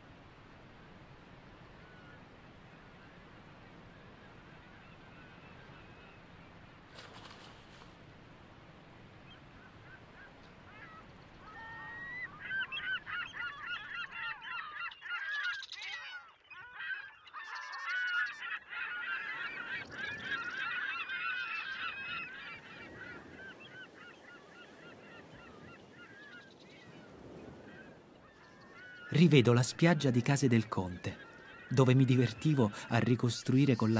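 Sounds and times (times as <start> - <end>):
flock of birds calling: 9.3 - 33.9.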